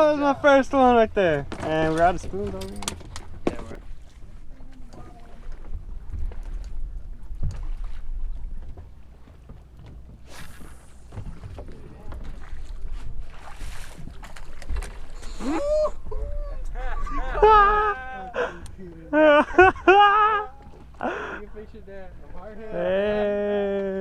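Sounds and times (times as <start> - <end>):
wind rumbling on microphone: 9.9 - 18.0.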